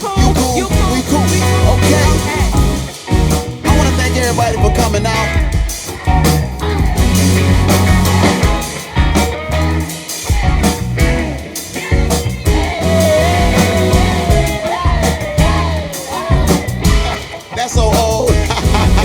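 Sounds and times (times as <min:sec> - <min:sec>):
wavering lead melody: 0:00.0 - 0:17.6
bass guitar: 0:00.0 - 0:19.0
drum kit: 0:00.0 - 0:19.0.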